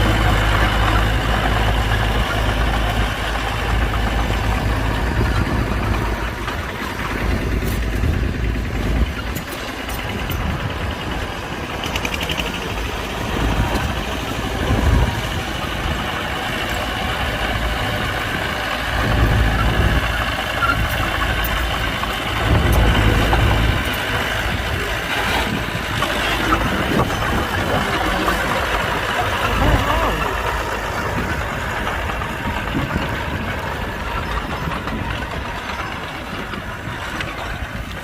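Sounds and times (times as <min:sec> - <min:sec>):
heavy diesel engine rumbling: 0:00.0 - 0:38.0.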